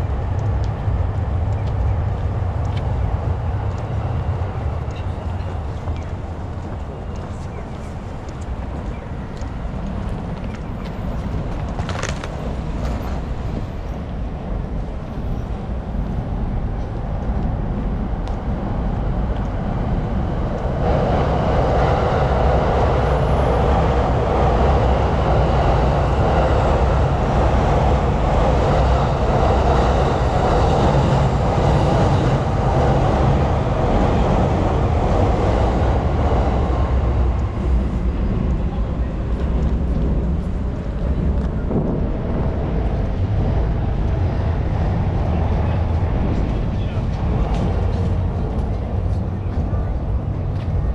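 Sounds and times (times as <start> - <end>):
passing vehicles: 0.0 - 50.9.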